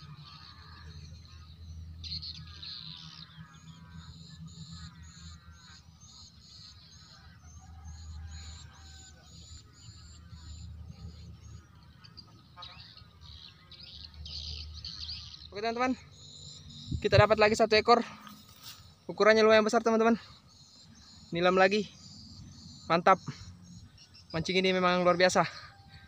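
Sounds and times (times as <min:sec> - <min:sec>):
trilling bird calls: 0:00.0 - 0:26.0
low wind rumble: 0:13.0 - 0:19.6.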